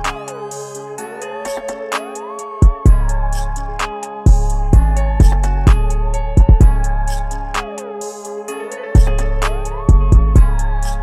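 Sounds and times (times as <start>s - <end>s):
electronic music: 0.0s - 11.0s
hi-hat ticks: 0.0s - 11.0s
heavy bass and kick drum: 2.6s - 7.7s, 9.0s - 11.0s.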